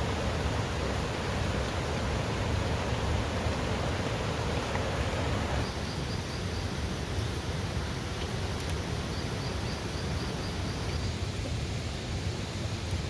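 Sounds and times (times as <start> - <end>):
steady rushing noise: 0.0 - 6.1.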